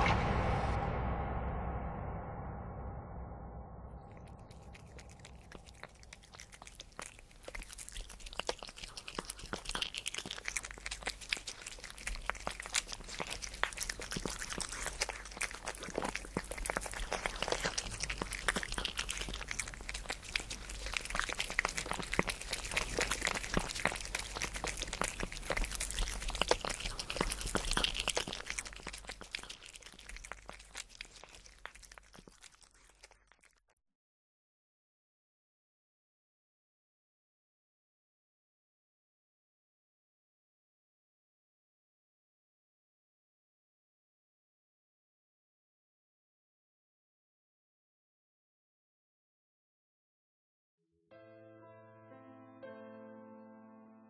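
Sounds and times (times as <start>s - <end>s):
dense crackling and crunching: 4.0s - 33.6s.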